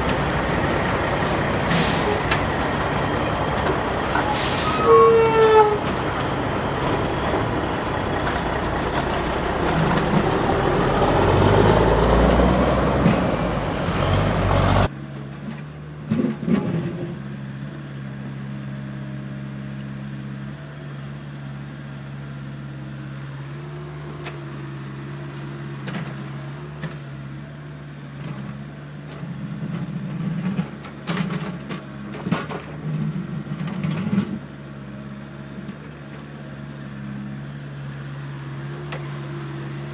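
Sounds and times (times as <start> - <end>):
diesel machinery rumbling: 0.0 - 39.9.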